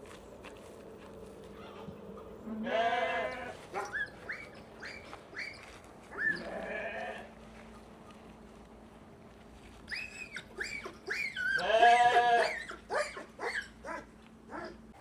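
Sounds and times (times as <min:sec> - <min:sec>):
lambs bleating: 0:02.5 - 0:03.6, 0:06.2 - 0:07.3, 0:11.6 - 0:12.6.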